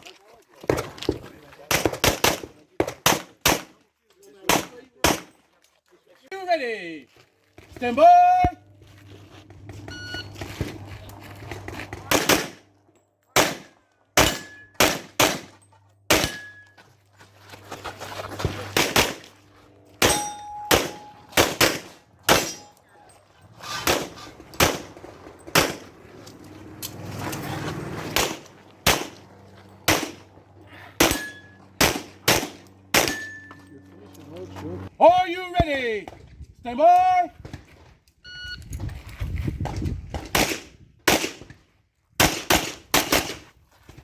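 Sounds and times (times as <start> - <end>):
pistol shots: 1.7 - 3.8, 4.5 - 5.3, 12.1 - 12.7, 13.4 - 16.6, 18.7 - 19.3, 20.0 - 22.7, 23.8 - 25.9, 28.2 - 29.2, 29.9 - 30.3, 31.0 - 33.3, 40.3 - 41.4, 42.2 - 43.4
steel targets ringing: 13.5 - 17.0, 19.9 - 23.3, 31.0 - 31.9, 33.0 - 33.8.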